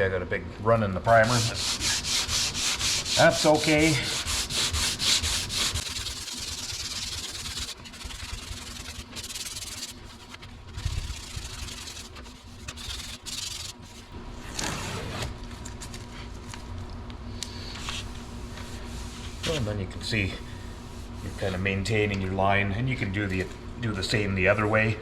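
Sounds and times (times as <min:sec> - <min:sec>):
sandpaper rubbing on panel: 0:01.2 - 0:14.1, 0:17.8 - 0:21.8.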